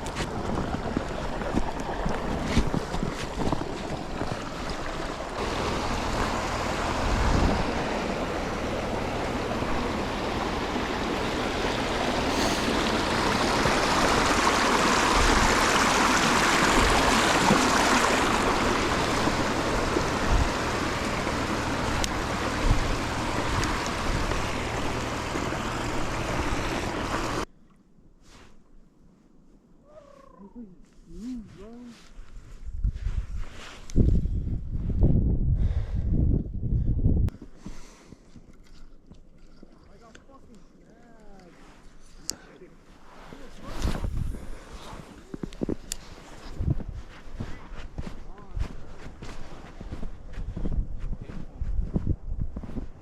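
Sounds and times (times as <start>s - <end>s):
low engine hum: 0.0s - 27.5s
truck road noise: 0.0s - 27.5s
wind on microphone: 6.9s - 11.4s, 32.4s - 37.3s, 43.6s - 49.0s, 49.8s - 53.0s.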